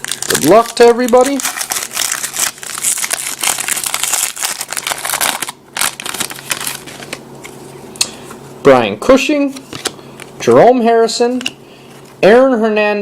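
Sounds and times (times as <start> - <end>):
card wrapper tearing and crinkling: 0.0 - 7.2.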